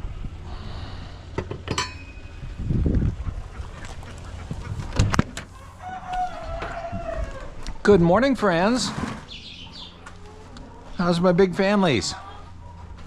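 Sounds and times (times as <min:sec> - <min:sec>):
ducks calling: 0:02.8 - 0:13.0.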